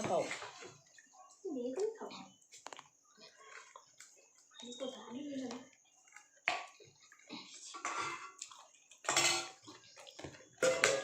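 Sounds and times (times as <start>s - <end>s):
plates and utensils clinking: 7.5s - 11.0s.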